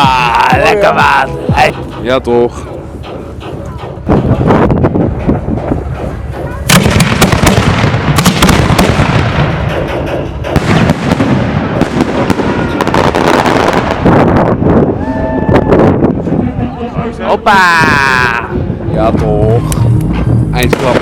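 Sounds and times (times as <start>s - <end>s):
fireworks bangs and crackles: 3.9s - 16.4s, 19.1s - 21.0s.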